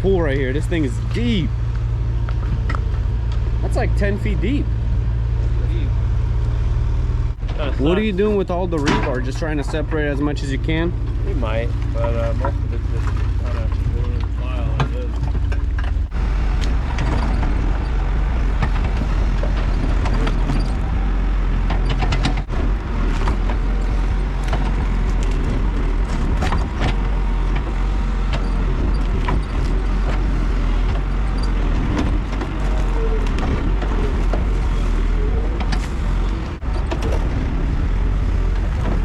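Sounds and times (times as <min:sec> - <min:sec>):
diesel engine running under load: 0:00.0 - 0:39.0
debris clanking: 0:07.3 - 0:39.0.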